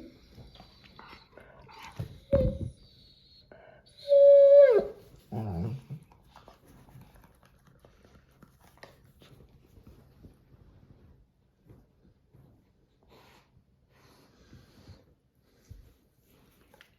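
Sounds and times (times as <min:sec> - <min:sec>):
dog whining: 0:00.0 - 0:06.0.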